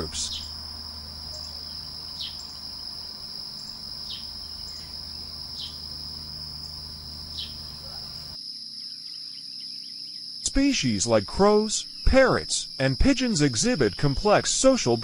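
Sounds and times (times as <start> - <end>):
high-pitched insect trill: 0.0 - 15.0
short falling bird chirp: 1.3 - 2.7, 3.6 - 5.9, 6.6 - 8.4.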